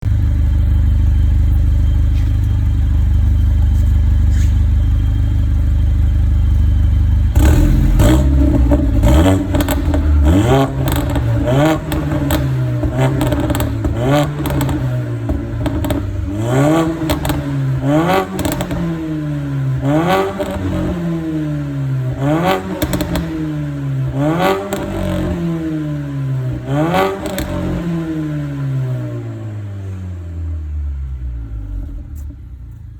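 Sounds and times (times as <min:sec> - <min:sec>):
car engine idling and revving: 0:00.0 - 0:32.9
exhaust pops and bangs: 0:07.4 - 0:19.0.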